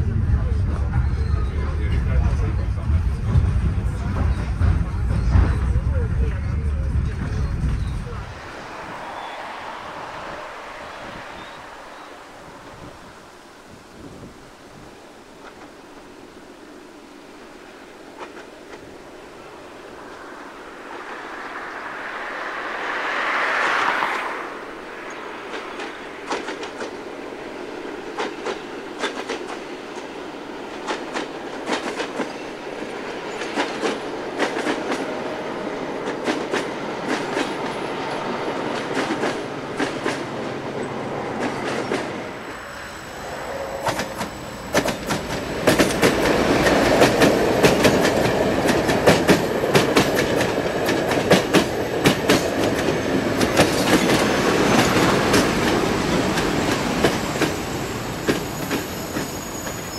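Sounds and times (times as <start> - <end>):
diesel train running past: 0.0 - 59.9
train wheel clatter: 0.5 - 9.8, 25.0 - 27.0, 27.6 - 43.2, 43.8 - 59.9
wheels clicking over rail joints: 25.0 - 42.2, 43.8 - 59.9.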